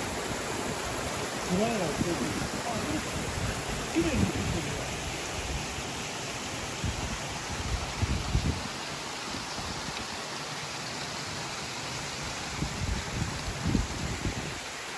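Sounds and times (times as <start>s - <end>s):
waterfall rushing: 0.0s - 14.9s
wind buffeting microphone: 0.1s - 5.8s, 6.8s - 8.7s, 12.4s - 14.7s.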